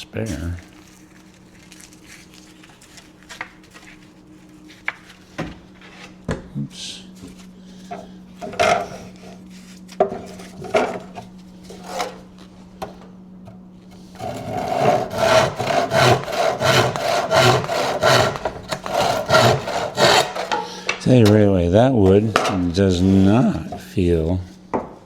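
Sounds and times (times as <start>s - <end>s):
knocks and scrapes: 7.9s - 9.4s, 10.0s - 21.3s
hand saw cutting wood: 8.4s - 9.4s, 10.0s - 12.3s, 13.9s - 21.3s.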